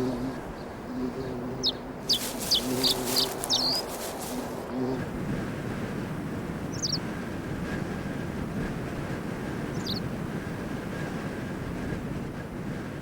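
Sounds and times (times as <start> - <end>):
small bird chirping: 0.0 - 4.7, 6.7 - 7.0, 9.7 - 10.0
steady rushing background noise: 1.7 - 6.6.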